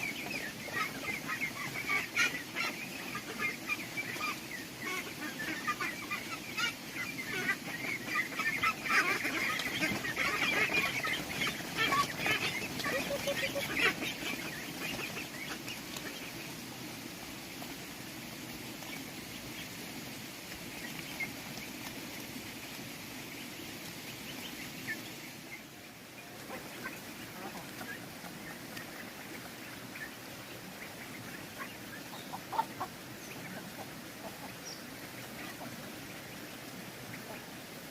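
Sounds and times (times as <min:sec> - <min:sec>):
ducks quacking: 0:00.0 - 0:16.6, 0:24.3 - 0:37.9.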